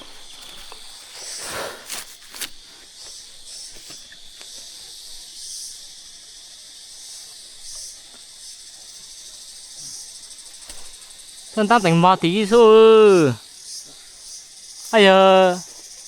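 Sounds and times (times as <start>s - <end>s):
rustle: 0.0s - 5.8s, 6.9s - 11.5s
insects chirring: 0.0s - 16.0s.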